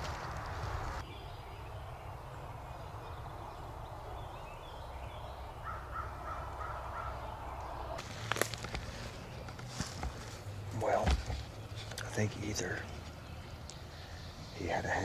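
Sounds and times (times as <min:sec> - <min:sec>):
distant wild turkey calling: 0:01.1 - 0:08.0.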